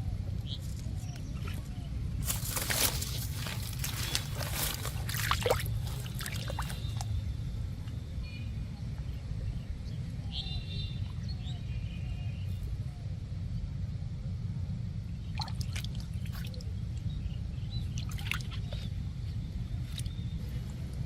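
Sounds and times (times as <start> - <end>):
steady low rumble: 0.0 - 21.0
water trickling and sloshing: 1.2 - 7.2, 15.2 - 17.1, 17.7 - 19.1
sharp splashes: 2.2 - 7.1.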